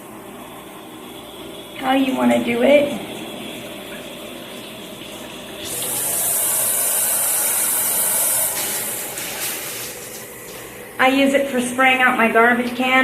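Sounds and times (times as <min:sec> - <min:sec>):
water spraying from shower head: 0:05.6 - 0:10.8.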